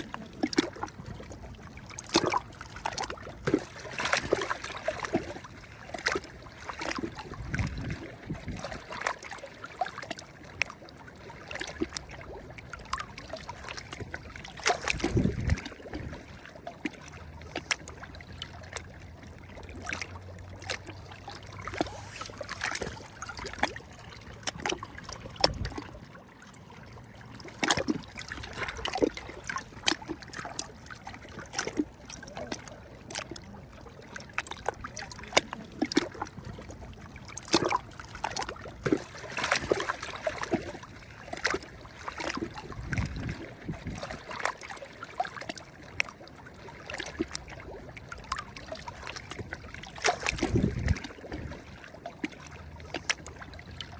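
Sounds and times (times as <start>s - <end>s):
water trickling: 0.0s - 53.9s
waves splashing on shore: 21.2s - 23.8s.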